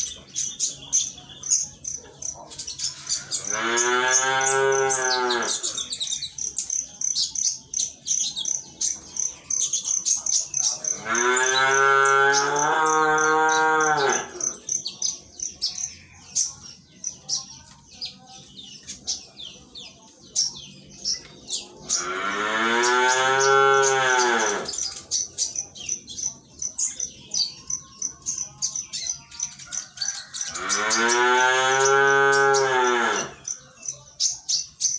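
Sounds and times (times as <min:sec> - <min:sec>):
songbird chirping: 0:00.0 - 0:34.9
cow mooing: 0:03.3 - 0:05.7, 0:10.9 - 0:14.5, 0:21.9 - 0:24.8, 0:30.6 - 0:33.4.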